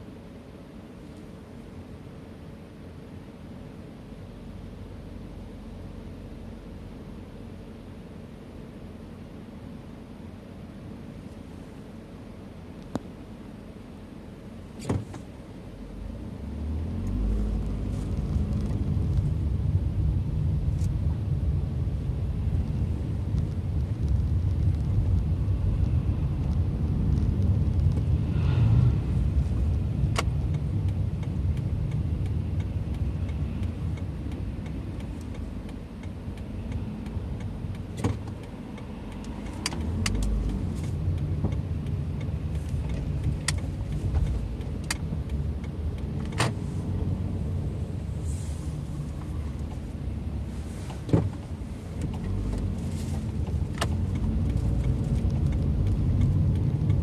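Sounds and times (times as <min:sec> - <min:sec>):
car engine and tyres rumbling: 0:00.0 - 0:57.0
sharp clicks and knocks: 0:30.0 - 0:46.6.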